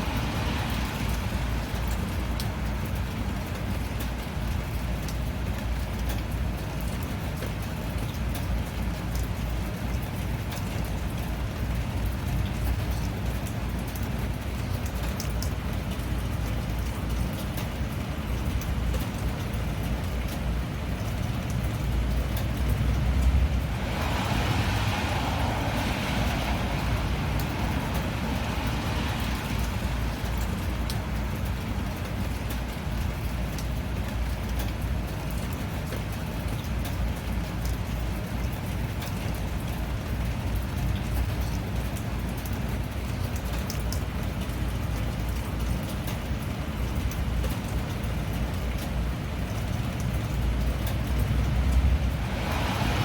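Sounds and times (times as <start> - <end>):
steady rain falling: 0.0 - 53.0
rushing hiss: 52.0 - 53.0.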